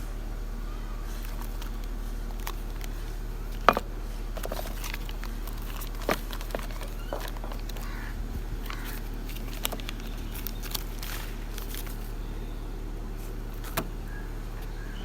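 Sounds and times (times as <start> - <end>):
steady low hum: 0.0 - 15.0
objects clicking and knocking: 1.1 - 8.0, 8.6 - 12.0.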